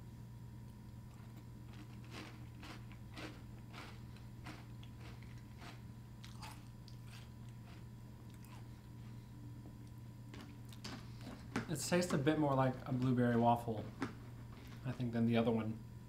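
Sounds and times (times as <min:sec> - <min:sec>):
person chewing crunchy cereal: 0:01.1 - 0:09.3, 0:10.3 - 0:11.7.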